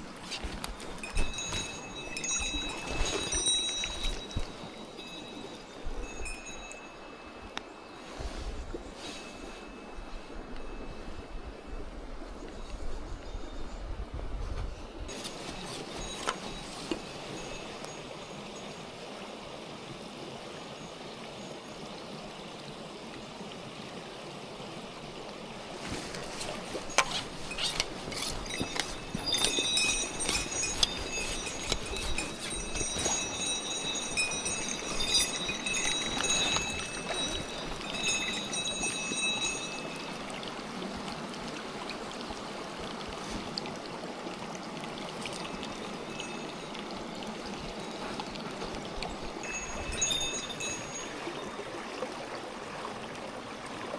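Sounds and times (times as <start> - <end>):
mountain stream running: 0.0 - 13.4, 15.0 - 53.9
small metal bell jingling: 0.4 - 7.2, 15.1 - 18.7, 26.4 - 40.3, 49.2 - 51.3.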